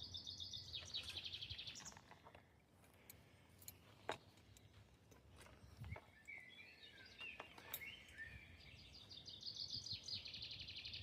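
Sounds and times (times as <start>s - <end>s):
songbird singing faintly: 0.0s - 11.0s.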